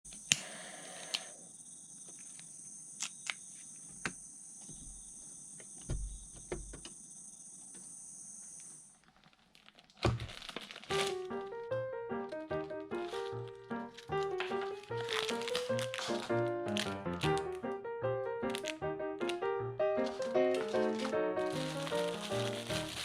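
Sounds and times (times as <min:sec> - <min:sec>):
insects trilling: 0:00.1 - 0:09.3, 0:12.9 - 0:17.0, 0:20.0 - 0:23.0
rustling burst: 0:20.0 - 0:23.0.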